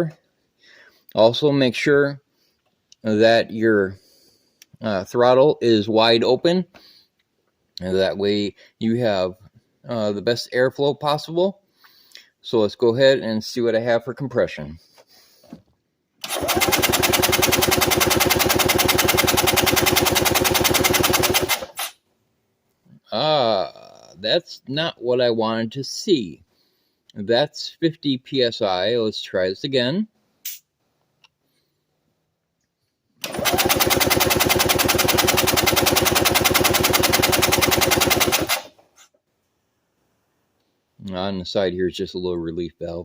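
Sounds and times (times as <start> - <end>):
engine cranked by starter: 16.2 - 21.9, 33.2 - 38.8.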